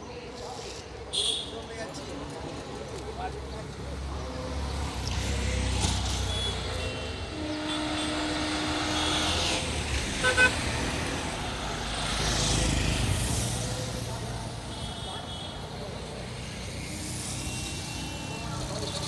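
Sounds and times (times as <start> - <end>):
road traffic rumble: 0.2 - 19.0
vehicle horn: 6.3 - 9.6, 10.2 - 10.6.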